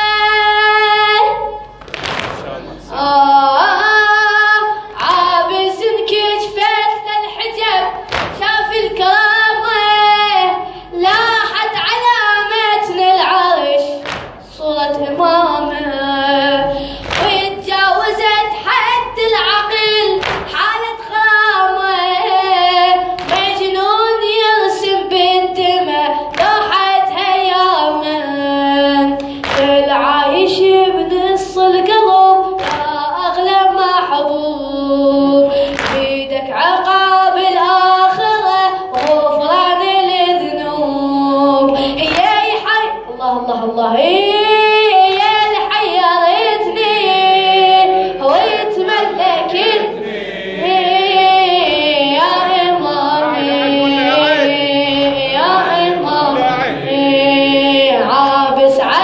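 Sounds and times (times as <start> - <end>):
sharp rhythmic beats: 1.7 - 2.8, 7.9 - 8.7, 13.9 - 14.6, 16.7 - 18.2, 20.0 - 20.8
man singing elegy unaccompanied: 53.0 - 57.1.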